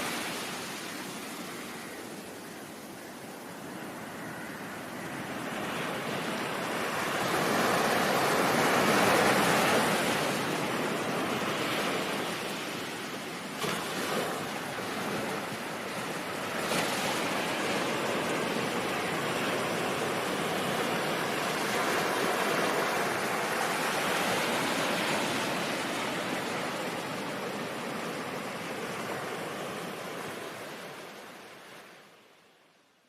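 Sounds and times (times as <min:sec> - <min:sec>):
ocean surf hissing: 0:05.2 - 0:31.7.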